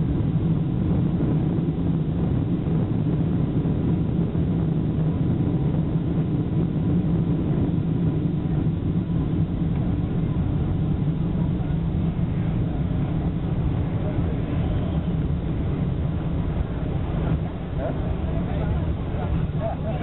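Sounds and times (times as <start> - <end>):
airliner engine drone in cabin: 0.0 - 20.0
faint steady whine: 0.0 - 20.0.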